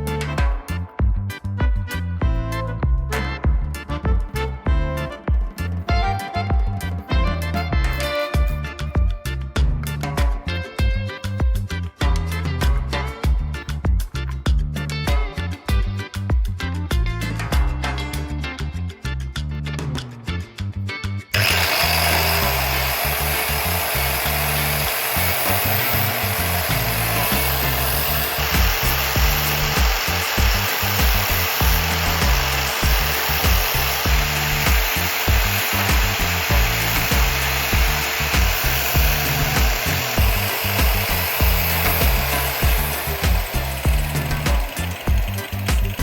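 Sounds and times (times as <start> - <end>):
background music: 0.0 - 46.0
power tool motor running: 21.3 - 46.0.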